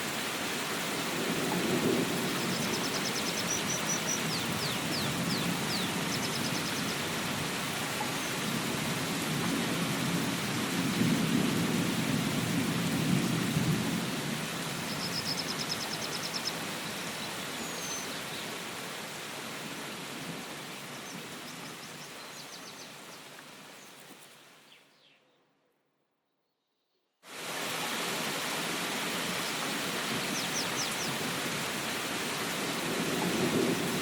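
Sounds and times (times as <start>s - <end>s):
steady rain falling: 0.0s - 24.8s, 27.3s - 34.0s
rumble of thunder: 32.8s - 34.0s.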